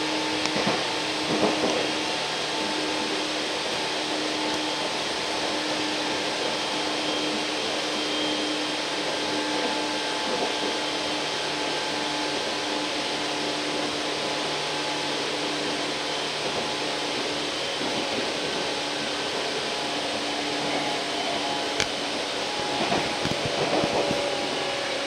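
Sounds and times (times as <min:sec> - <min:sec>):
continuous train hum: 0:00.0 - 0:25.0
train wheels on rails: 0:00.0 - 0:25.0.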